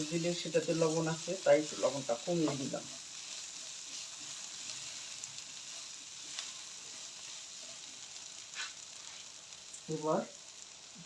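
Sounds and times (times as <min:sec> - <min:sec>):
onion frying in oil: 0:00.0 - 0:11.0.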